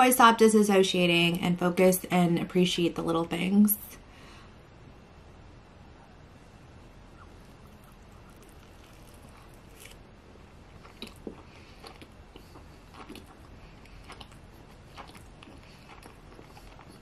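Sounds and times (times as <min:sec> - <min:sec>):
person chewing food: 0:07.2 - 0:17.0.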